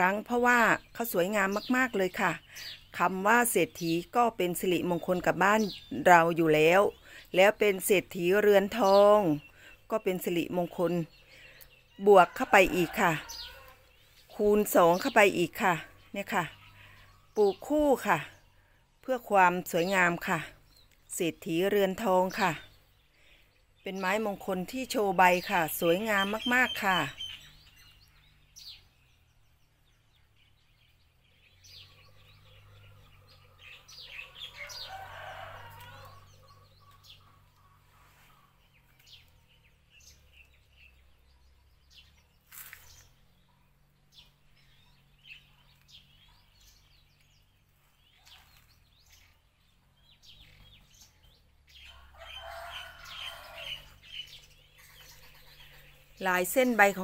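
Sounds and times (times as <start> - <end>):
bird chirps: 13.2 - 57.0.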